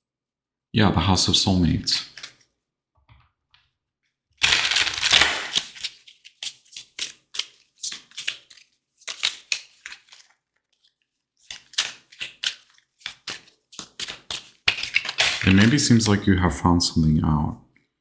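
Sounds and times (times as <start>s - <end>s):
cards shuffling: 2.0s - 2.4s, 4.4s - 16.2s.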